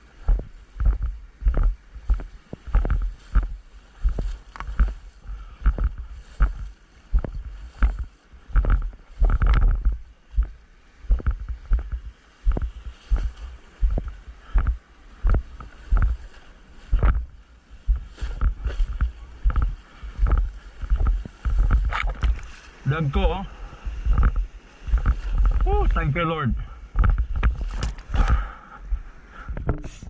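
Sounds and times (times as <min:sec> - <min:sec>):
water churning: 0:00.0 - 0:29.7
hand strokes splashing water: 0:11.2 - 0:26.3.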